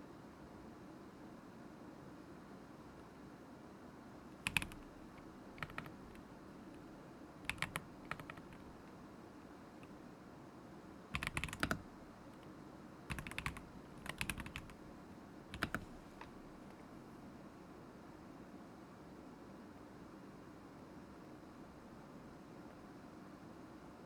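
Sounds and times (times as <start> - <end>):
mechanical keyboard typing: 4.4 - 8.9, 11.1 - 12.0, 13.1 - 14.8, 15.5 - 16.8.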